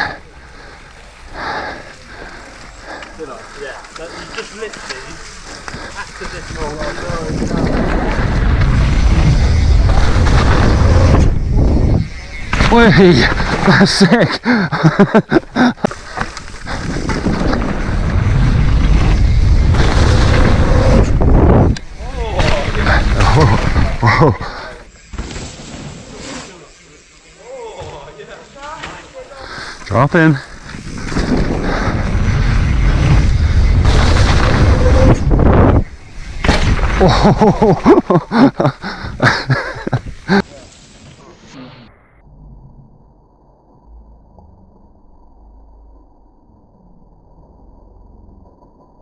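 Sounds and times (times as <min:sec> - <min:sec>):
tyres rumbling over dirt: 0:00.0 - 0:26.7, 0:27.8 - 0:41.3
wind buffeting microphone: 0:05.4 - 0:12.3, 0:16.6 - 0:24.0, 0:30.6 - 0:36.4
bike knocks and thuds: 0:36.4 - 0:37.0.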